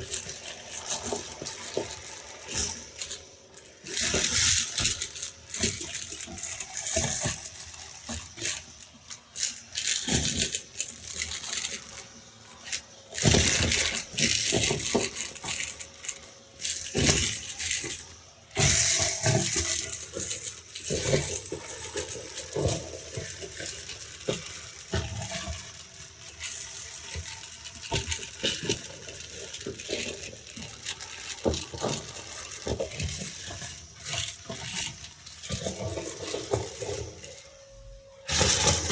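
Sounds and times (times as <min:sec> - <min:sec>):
beads rattling through vacuum hose: 0:00.0 - 0:38.9.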